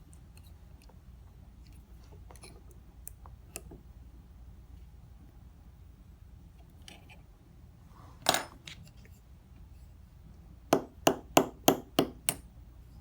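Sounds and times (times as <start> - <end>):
small hammer tapping metal: 10.7 - 12.5.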